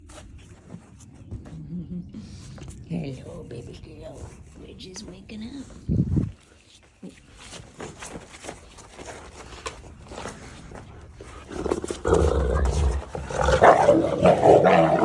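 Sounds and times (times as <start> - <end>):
faint scuffling: 0.0 - 15.0
dog growling and snarling: 11.3 - 15.0.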